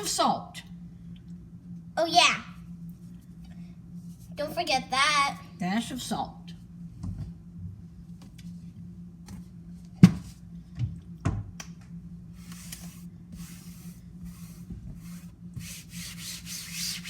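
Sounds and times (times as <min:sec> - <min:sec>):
scraping hiss in bowl: 0:12.4 - 0:17.0.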